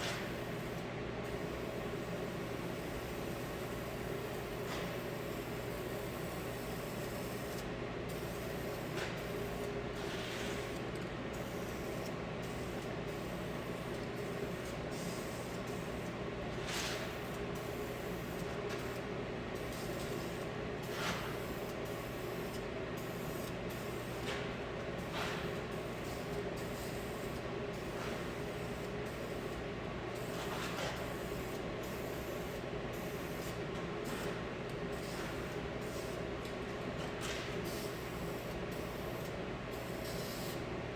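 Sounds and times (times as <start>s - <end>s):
steady background hum: 0.0s - 40.9s.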